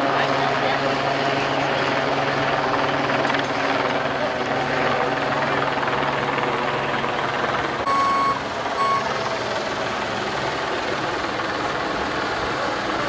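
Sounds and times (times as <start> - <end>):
rumble of engines: 0.0 - 13.0
electronic vehicle beeps: 7.8 - 9.2.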